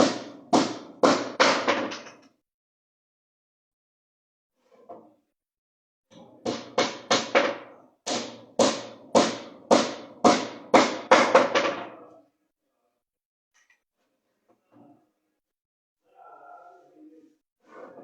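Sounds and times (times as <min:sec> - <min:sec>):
hammer striking wood: 0:00.0 - 0:02.2, 0:06.4 - 0:11.9.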